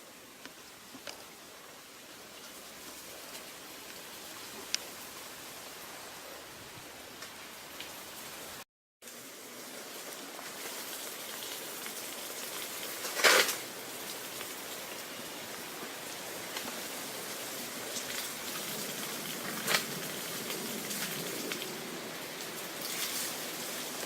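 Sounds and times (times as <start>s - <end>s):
falling water splashing: 7.3s - 24.0s.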